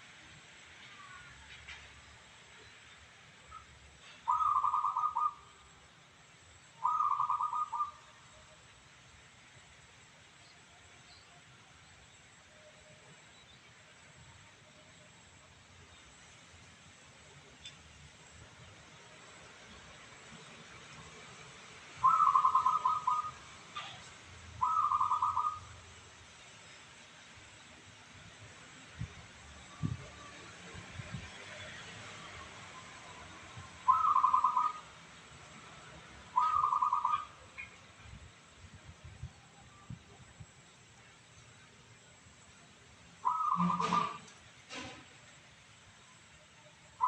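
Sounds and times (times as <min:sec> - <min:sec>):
dove cooing: 0:04.3 - 0:05.4, 0:06.8 - 0:08.0, 0:22.0 - 0:23.9, 0:24.6 - 0:25.7, 0:33.9 - 0:34.8, 0:36.4 - 0:37.3, 0:43.2 - 0:44.2.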